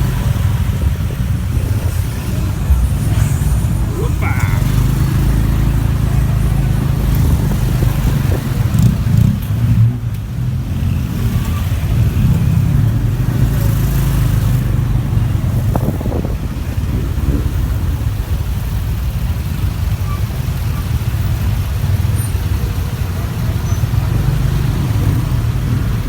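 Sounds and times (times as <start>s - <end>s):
motorbike engine running: 0.0s - 10.7s.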